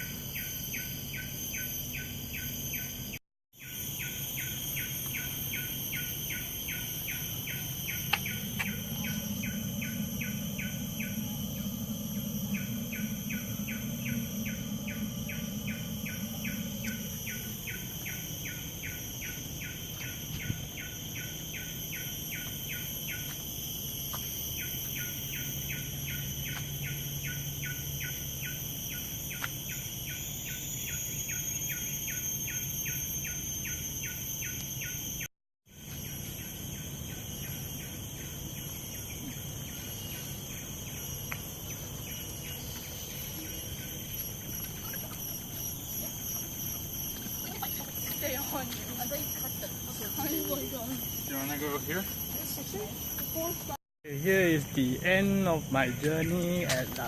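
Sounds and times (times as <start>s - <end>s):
rapid chirping call: 0.0s - 23.2s
insects trilling: 0.0s - 57.0s
low rumble: 8.3s - 18.2s.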